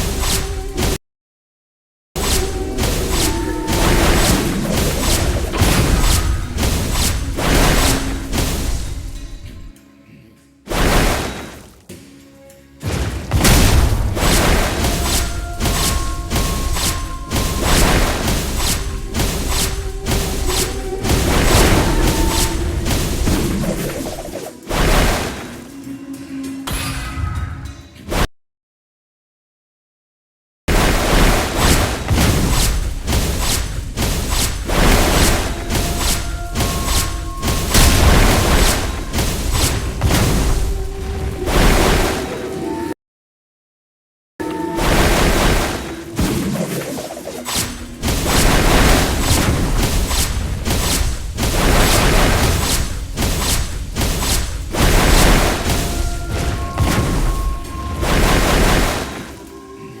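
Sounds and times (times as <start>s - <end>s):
held music tones: 11.8s - 26.7s.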